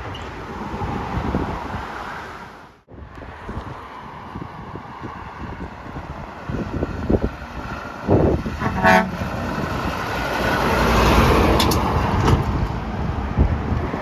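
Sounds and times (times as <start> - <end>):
truck passing by: 3.2 - 14.0
truck horn blast: 8.4 - 10.1.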